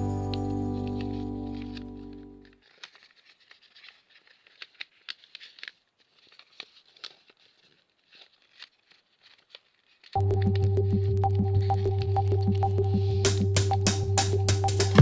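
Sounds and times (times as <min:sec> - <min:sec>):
background music: 0:00.0 - 0:02.5, 0:10.2 - 0:15.0
paper being folded and creased: 0:00.9 - 0:10.1.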